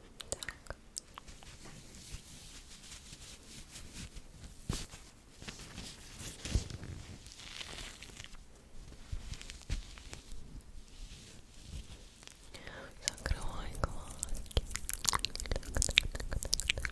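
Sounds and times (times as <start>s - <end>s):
soft crackles and crinkles: 0.0s - 16.9s.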